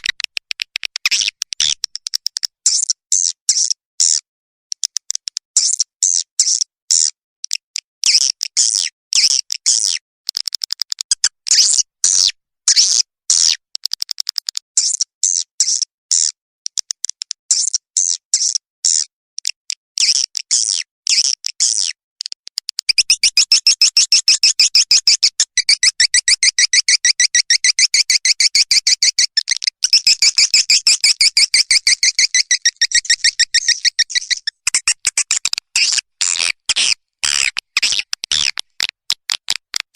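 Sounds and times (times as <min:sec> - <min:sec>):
swiftlets chirping: 0:29.8 - 0:38.8.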